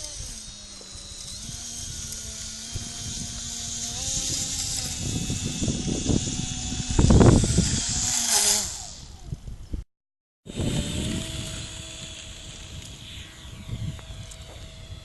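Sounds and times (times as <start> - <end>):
model airplane motor whining: 0.0 - 9.7, 10.5 - 15.0
wind rumble on microphone: 0.0 - 9.8, 10.5 - 15.0.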